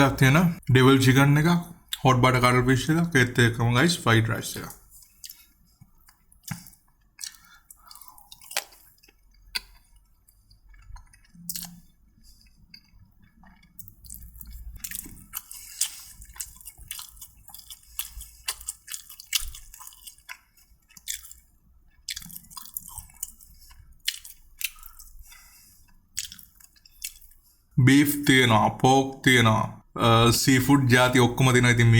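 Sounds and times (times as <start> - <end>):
mouth clicks and smacks: 4.6 - 25.3, 25.9 - 27.4
person chewing food: 4.6 - 27.8.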